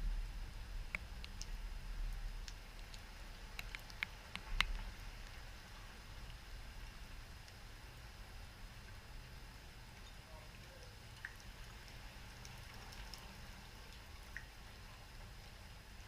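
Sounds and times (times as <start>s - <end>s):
faint ticks and clicks: 0.0s - 7.7s, 8.8s - 14.6s.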